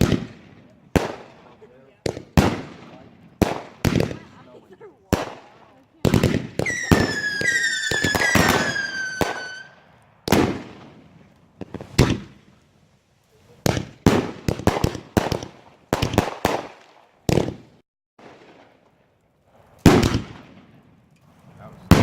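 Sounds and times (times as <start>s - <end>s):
firework bangs: 0.0s - 12.5s, 13.6s - 18.9s, 19.8s - 20.9s, 21.7s - 22.0s
whistling fireworks: 5.2s - 12.4s.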